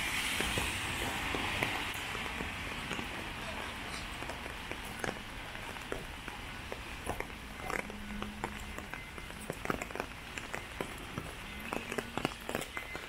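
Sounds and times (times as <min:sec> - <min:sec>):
steady rain: 0:00.0 - 0:09.1.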